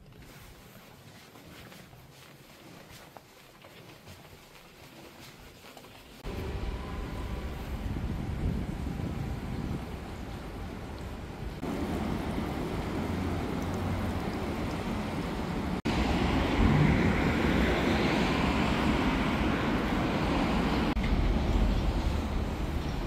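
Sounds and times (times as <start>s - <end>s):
vehicle rumble with hiss: 6.3s - 23.0s.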